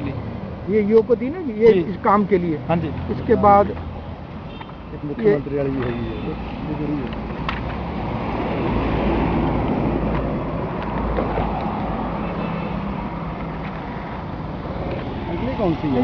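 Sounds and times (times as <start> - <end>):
vehicle passing close by: 6.2 - 16.0.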